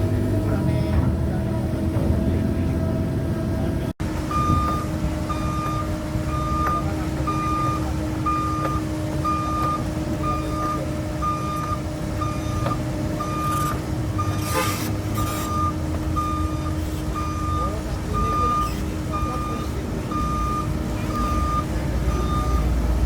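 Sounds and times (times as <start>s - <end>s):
diesel engine running: 0.0s - 23.0s
travel alarm beeping: 4.2s - 23.0s.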